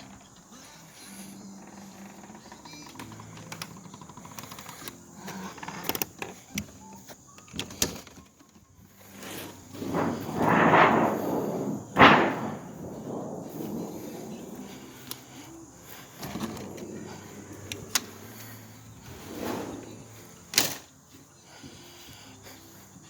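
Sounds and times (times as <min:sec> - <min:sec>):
door sliding: 0:09.0 - 0:20.9
door banging shut: 0:09.7 - 0:15.5, 0:16.2 - 0:18.2.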